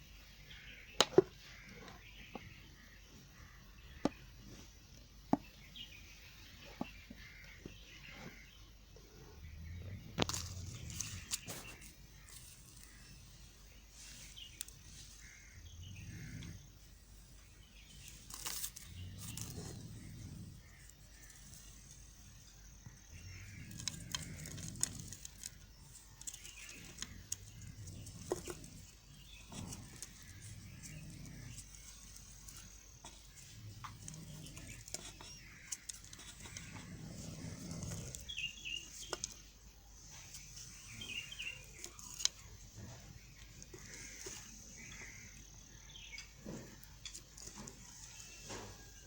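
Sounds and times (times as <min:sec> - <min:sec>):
knife cutting soap: 0:16.2 - 0:39.5.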